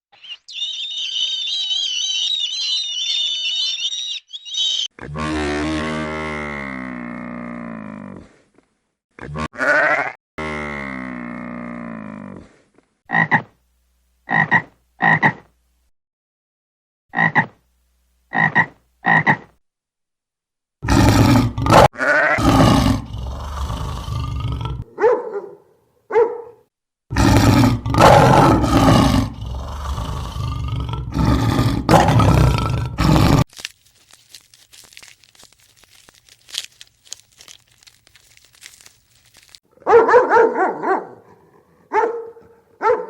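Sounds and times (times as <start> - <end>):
rough drawn-out animal calls: 0.1 - 5.4.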